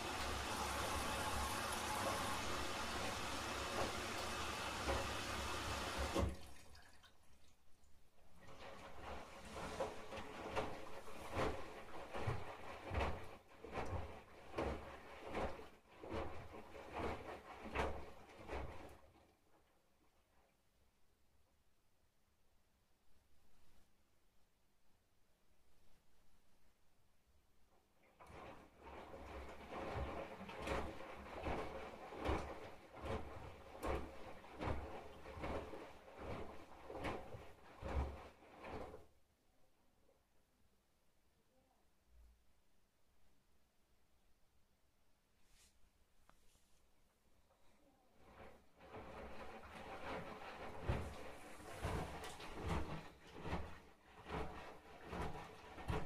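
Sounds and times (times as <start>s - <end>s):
washing machine drum tumbling: 0.0s - 6.4s, 28.3s - 39.0s, 48.3s - 56.0s.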